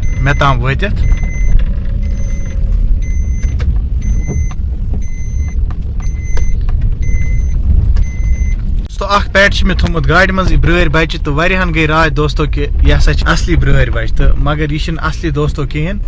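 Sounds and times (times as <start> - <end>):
electronic warning beep: 0.0 - 8.6
car engine and road rumble: 0.0 - 16.0.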